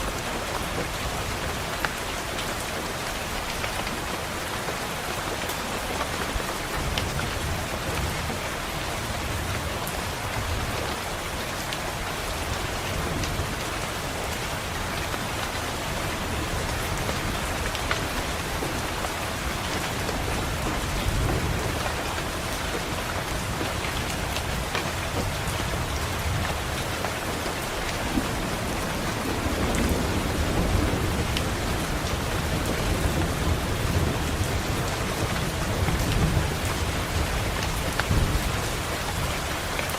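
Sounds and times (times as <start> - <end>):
rain pattering on a window: 0.0 - 39.9
low rolling thunder: 15.8 - 39.6.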